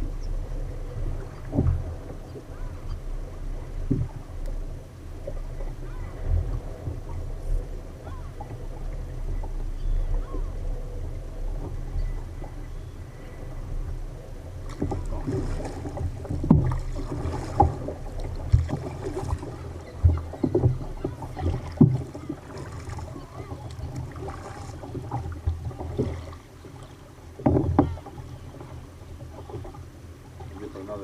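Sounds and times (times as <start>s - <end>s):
low rumble of wind and water: 0.0s - 31.0s
water splashing against kayak hull: 0.0s - 31.0s.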